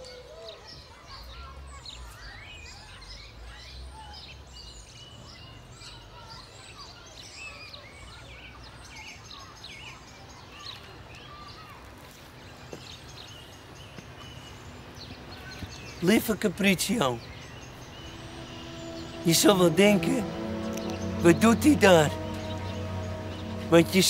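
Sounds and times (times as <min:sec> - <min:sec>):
songbirds chirping and singing: 0:13.0 - 0:24.0.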